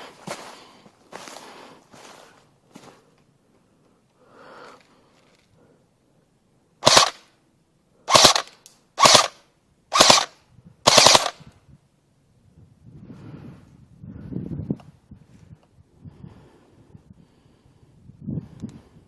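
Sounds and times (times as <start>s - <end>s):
airsoft gun full-auto bursts: 6.8s - 7.3s, 8.1s - 11.4s.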